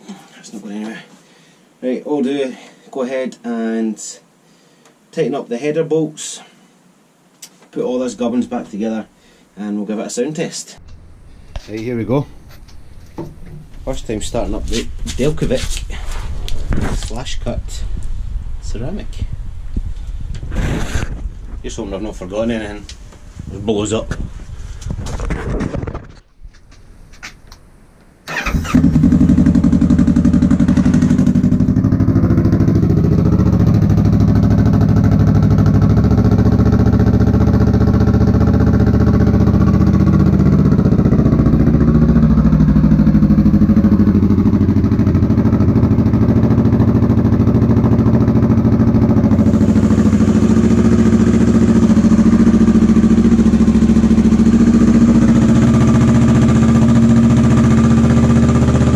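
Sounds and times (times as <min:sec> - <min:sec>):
motorcycle engine starting and running: 0:28.3 - 0:58.9.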